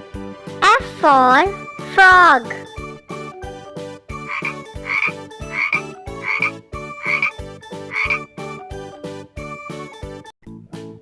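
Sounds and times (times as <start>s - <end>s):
bouncy children's music: 0.0s - 11.0s
cartoon frog croaking: 4.2s - 8.3s.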